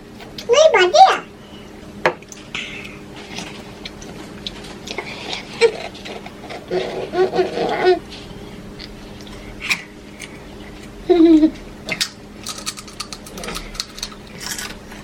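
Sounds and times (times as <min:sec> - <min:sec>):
eating clicks and crunches: 0:11.8 - 0:15.0.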